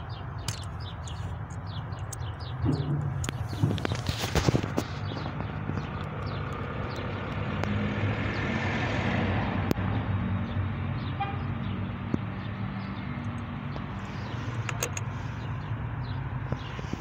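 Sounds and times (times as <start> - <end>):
sharp clicks: 0.4 - 7.8, 14.5 - 15.1.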